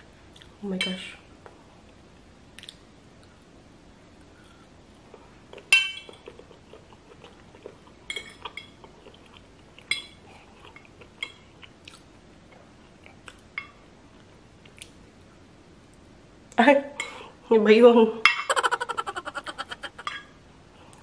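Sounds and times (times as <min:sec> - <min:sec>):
soft chewing: 0:04.2 - 0:13.5, 0:14.1 - 0:15.0.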